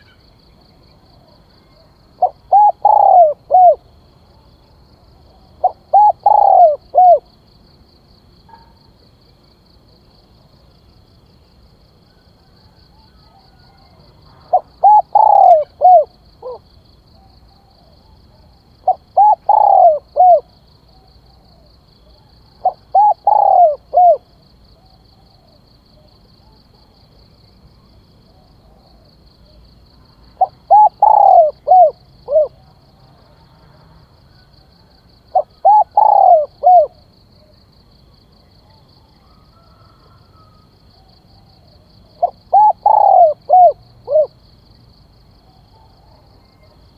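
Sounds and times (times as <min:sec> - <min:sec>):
dove cooing: 0:01.2 - 0:03.9, 0:05.3 - 0:07.3, 0:12.7 - 0:16.6, 0:17.2 - 0:26.6, 0:30.4 - 0:32.7, 0:34.4 - 0:37.5, 0:38.6 - 0:44.4.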